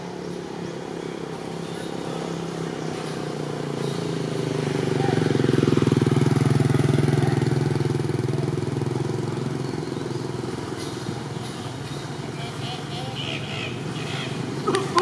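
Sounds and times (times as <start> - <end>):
vehicle engine passing by: 1.0 - 11.4, 13.7 - 15.0.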